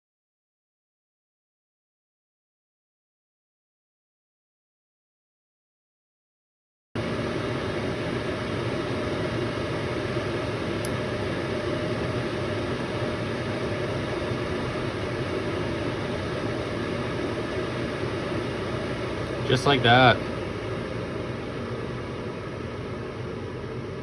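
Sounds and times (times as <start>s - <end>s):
air heater humming: 7.0s - 24.0s.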